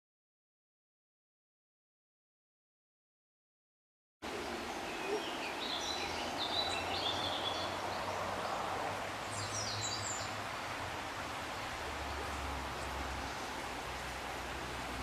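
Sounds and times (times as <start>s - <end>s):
birds chirping: 4.2s - 15.0s.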